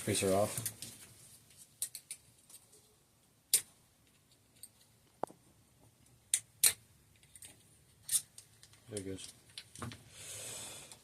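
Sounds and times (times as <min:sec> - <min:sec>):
light clicks and taps: 0:08.4 - 0:10.0.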